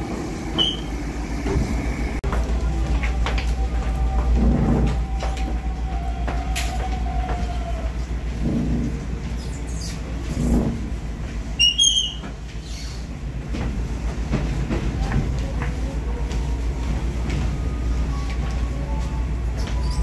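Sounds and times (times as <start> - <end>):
train carriage rumble: 0.0 - 20.0.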